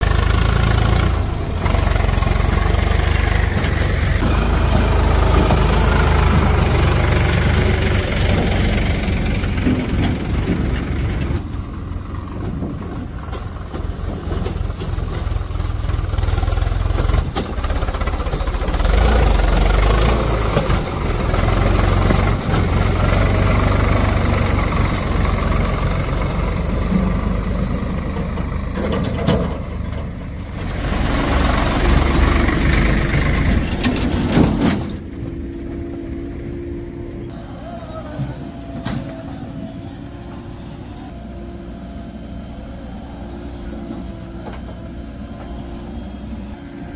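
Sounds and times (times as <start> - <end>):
diesel machinery rumbling: 0.0 - 46.9
metal clanks: 33.0 - 35.3.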